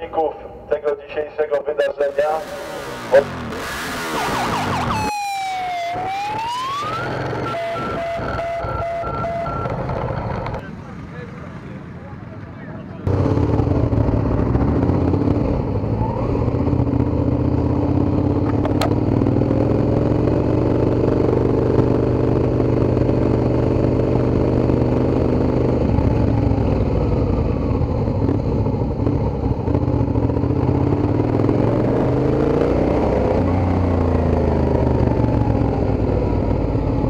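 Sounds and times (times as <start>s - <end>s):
motorcycle engine running: 2.1s - 4.9s, 13.0s - 37.0s.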